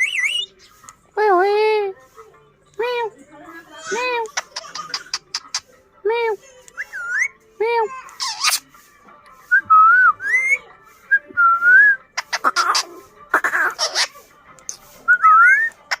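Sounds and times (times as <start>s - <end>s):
parrot whistling: 0.0s - 0.7s, 6.8s - 7.4s, 9.8s - 10.6s, 11.2s - 16.0s
parrot screeching: 3.9s - 5.6s, 8.2s - 8.6s, 12.2s - 14.2s.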